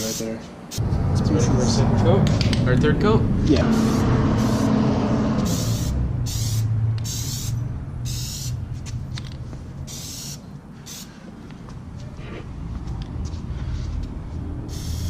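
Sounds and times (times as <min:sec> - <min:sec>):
low steady hum: 0:00.8 - 0:07.0
aerosol can spraying: 0:05.4 - 0:08.6, 0:09.9 - 0:11.1, 0:14.7 - 0:15.0.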